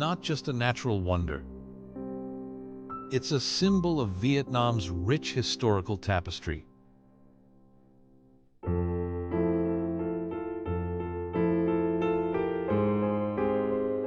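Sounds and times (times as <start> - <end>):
soft piano chords: 0.0 - 14.0.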